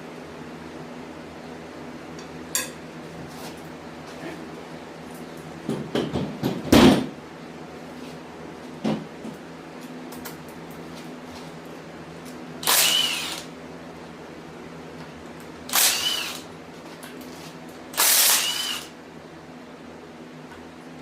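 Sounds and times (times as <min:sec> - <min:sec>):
power drill motor whine: 0:12.6 - 0:13.5, 0:15.7 - 0:16.5, 0:18.0 - 0:19.0.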